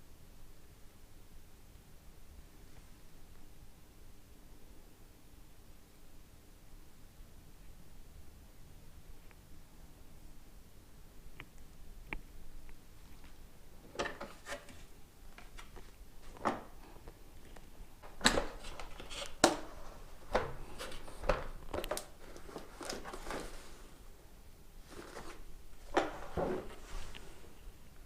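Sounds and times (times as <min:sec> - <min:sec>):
packaging rubbing rustles: 0:18.1 - 0:24.1, 0:24.8 - 0:27.4.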